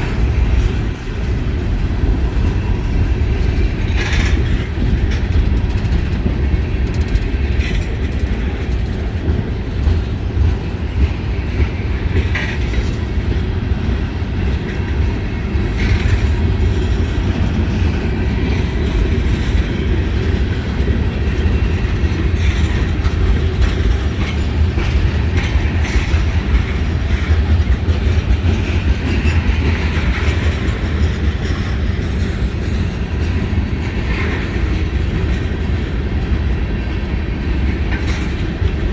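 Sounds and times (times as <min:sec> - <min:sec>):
freight cars rumbling on rails: 0:00.0 - 0:38.9.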